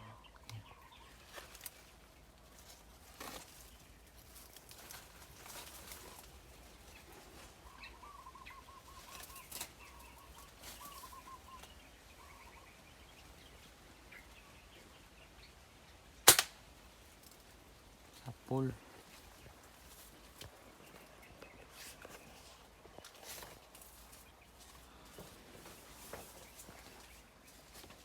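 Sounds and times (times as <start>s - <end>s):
small bird calling: 0.0s - 16.2s
soft rustles: 1.1s - 7.8s, 18.8s - 28.0s.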